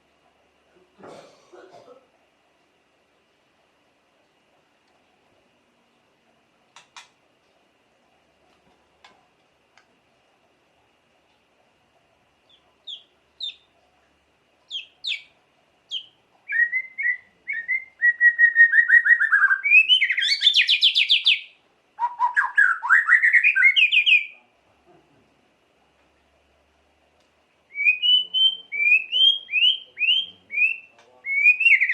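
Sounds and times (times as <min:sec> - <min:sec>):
songbird chirping and trilling: 0:12.4 - 0:13.9, 0:14.6 - 0:24.4, 0:27.7 - 0:31.9.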